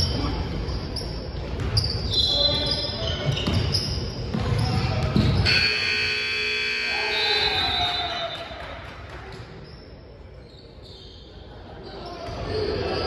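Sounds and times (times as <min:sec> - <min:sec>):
scoreboard buzzer blare: 0:05.5 - 0:07.5.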